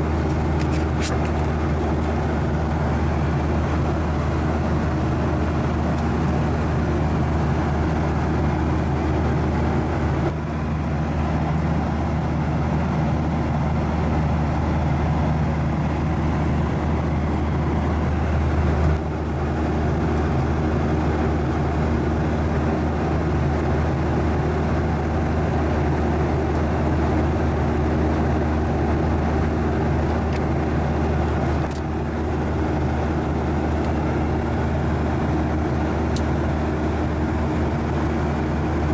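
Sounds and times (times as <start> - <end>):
low steady hum: 0.0 - 23.1
jet engines and airflow roar: 0.0 - 38.9.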